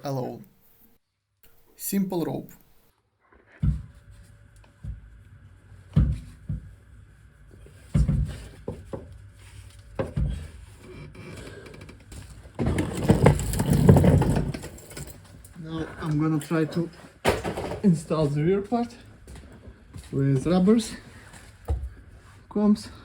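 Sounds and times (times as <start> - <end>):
car exhaust clunking and scraping: 7.5 - 15.2.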